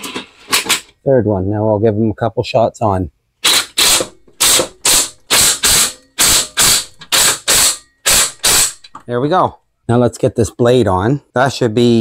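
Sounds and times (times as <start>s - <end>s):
ratchet wrench clicking: 3.4s - 9.0s.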